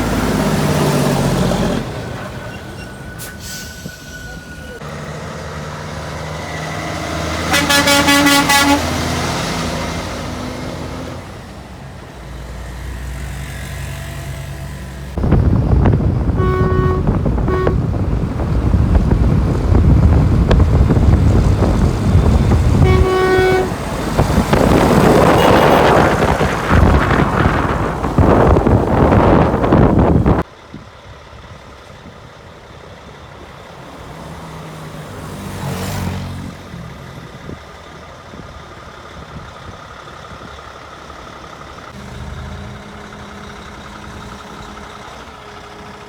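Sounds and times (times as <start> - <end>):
truck horns: 0.0 - 11.3, 15.1 - 30.4, 41.5 - 46.0
engine and road noise: 0.0 - 46.0.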